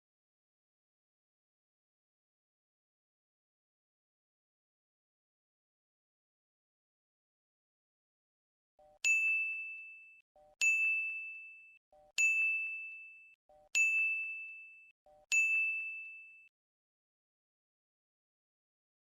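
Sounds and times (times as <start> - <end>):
bright bell-like ding: 8.8 - 16.5.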